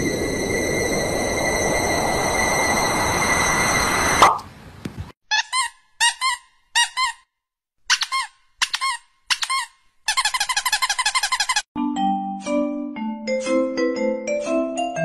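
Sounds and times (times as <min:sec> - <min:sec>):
piglet squeaking: 0:05.3 - 0:07.2, 0:07.9 - 0:11.6.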